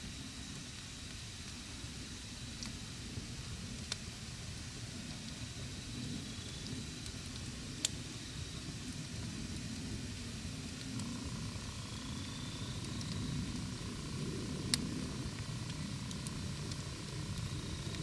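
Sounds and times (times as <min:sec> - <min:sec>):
campfire burning with crackles: 0:00.1 - 0:18.0
sharp pops from burning wood: 0:10.8 - 0:18.0.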